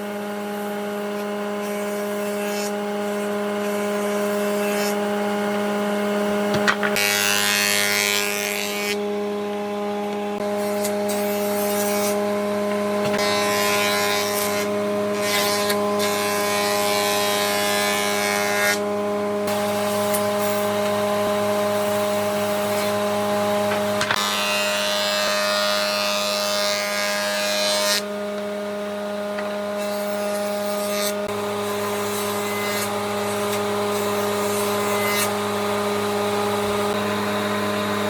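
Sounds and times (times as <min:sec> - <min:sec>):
power tool working wood: 0:00.0 - 0:38.0.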